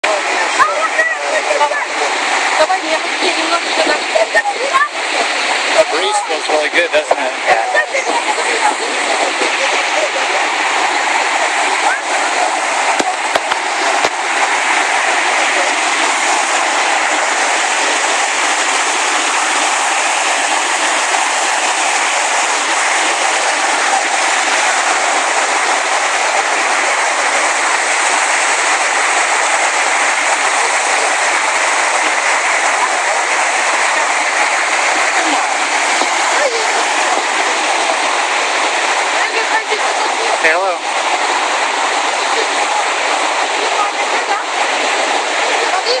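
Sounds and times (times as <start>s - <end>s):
waterfall rushing: 0.0s - 46.0s.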